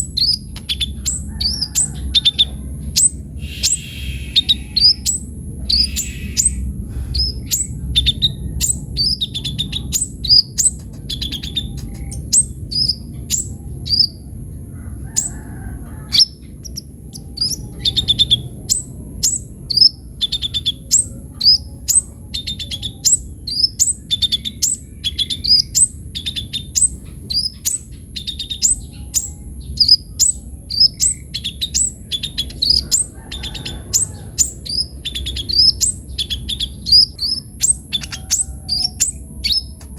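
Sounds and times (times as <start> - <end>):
sunbird singing high notes: 3.4 - 8.2.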